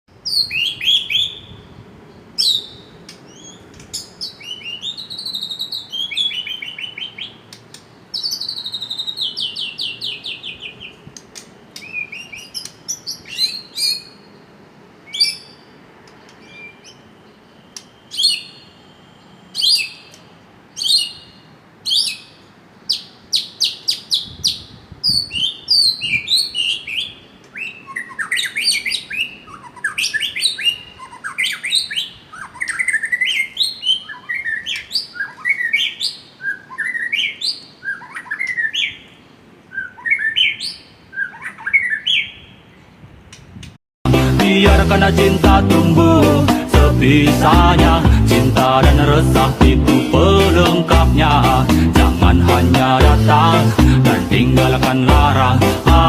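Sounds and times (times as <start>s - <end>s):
bird chirping and singing: 0.2s - 1.7s, 2.4s - 7.5s, 8.1s - 11.0s, 11.8s - 14.4s, 15.1s - 42.6s.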